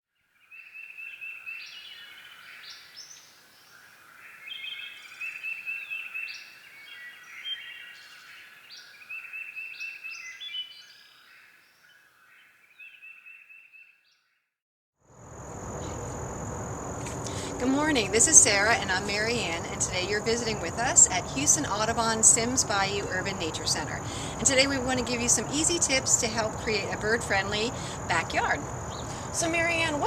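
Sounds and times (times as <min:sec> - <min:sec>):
birds chirping and trilling: 0:00.4 - 0:14.5, 0:17.2 - 0:30.0.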